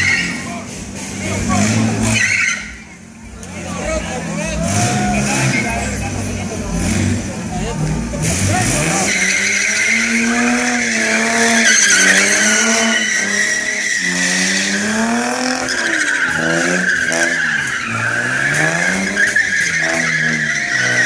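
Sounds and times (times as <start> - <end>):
car engine revving: 0.0 - 21.0
tyres screeching: 0.0 - 21.0.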